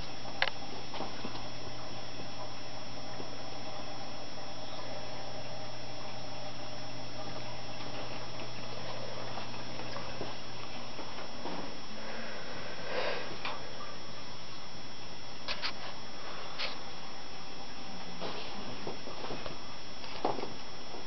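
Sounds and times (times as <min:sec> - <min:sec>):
aquarium equipment hum: 0:00.0 - 0:21.0
water bubbling: 0:00.0 - 0:21.0.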